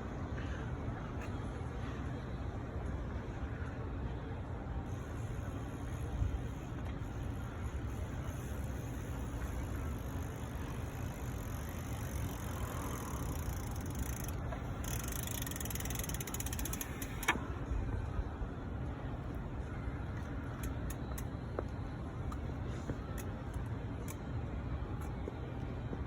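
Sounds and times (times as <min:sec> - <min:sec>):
bicycle freewheel ticking: 0:04.9 - 0:17.4.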